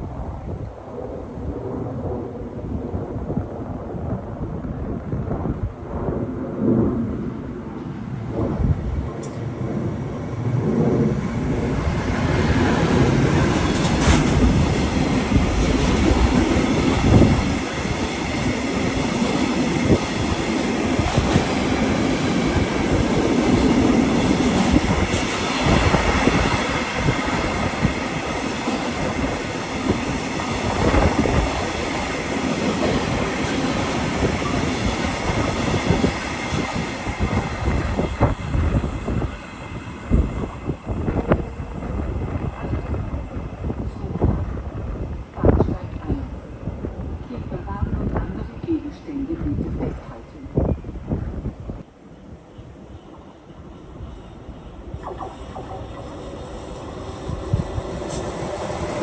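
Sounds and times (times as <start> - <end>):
train wheels rumbling on rails: 1.4 - 59.0
sharp knocks of train wheels: 12.8 - 39.0.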